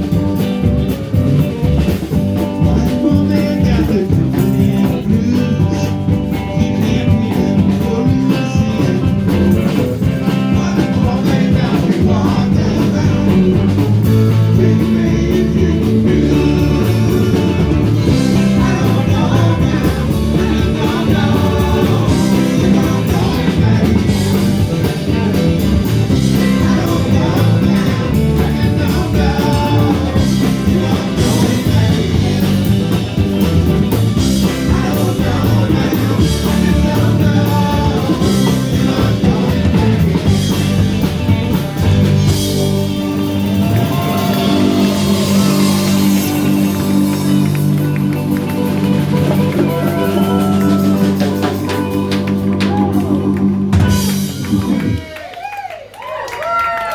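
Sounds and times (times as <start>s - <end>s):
person singing: 0.0s - 55.4s
rock band playing: 0.0s - 56.9s.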